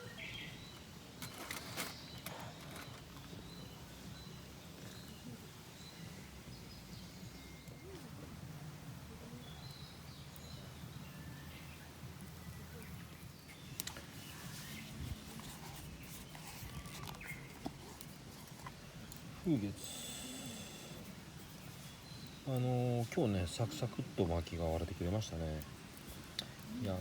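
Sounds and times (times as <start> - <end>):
faint bird chirps: 9.2 - 24.3.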